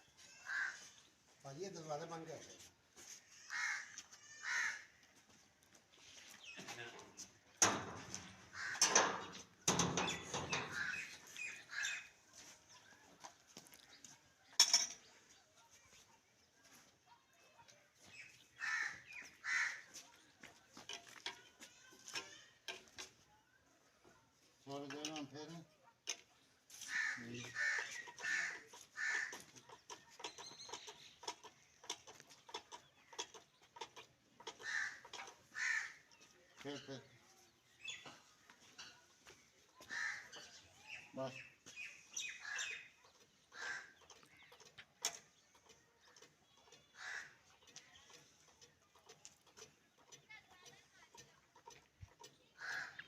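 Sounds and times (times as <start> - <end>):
birds calling: 0.0 - 53.0
crow cawing: 0.4 - 0.9, 3.4 - 4.9, 8.5 - 8.9, 18.6 - 19.9, 26.9 - 29.4, 34.6 - 36.1, 39.9 - 40.4, 43.5 - 44.0, 47.0 - 47.4, 52.6 - 53.0.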